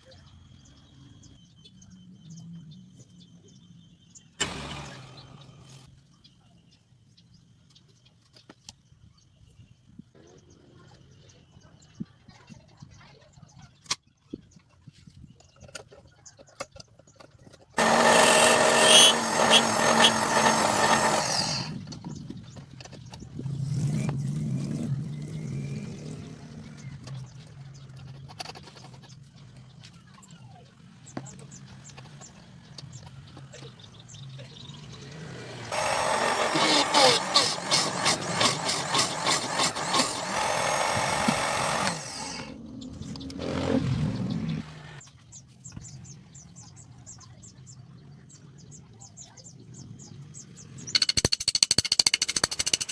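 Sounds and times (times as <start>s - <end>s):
electric power tool motor: 4.4s - 5.9s, 17.8s - 21.8s, 35.3s - 42.6s.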